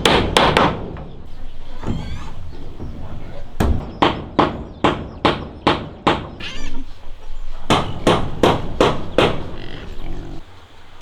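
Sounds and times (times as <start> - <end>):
hammer blows on wood: 7.7 - 9.6.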